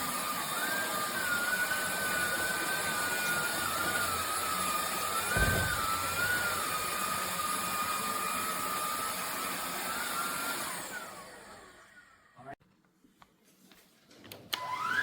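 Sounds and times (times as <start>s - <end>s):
vacuum motor whine: 0.0s - 12.4s, 14.6s - 15.0s
air rushing: 5.3s - 6.6s.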